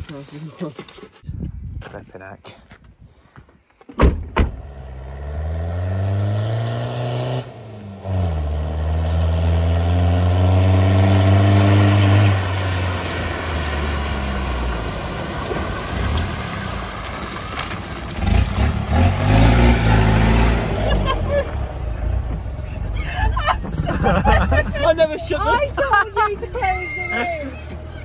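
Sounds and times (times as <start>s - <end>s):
truck engine revving: 4.7s - 26.4s
water spray and splashing: 11.0s - 21.4s.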